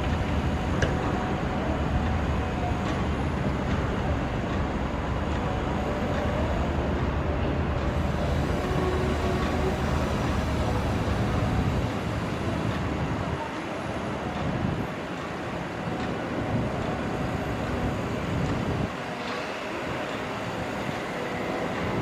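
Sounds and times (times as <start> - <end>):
heavy diesel machinery rumble: 0.0 - 22.0.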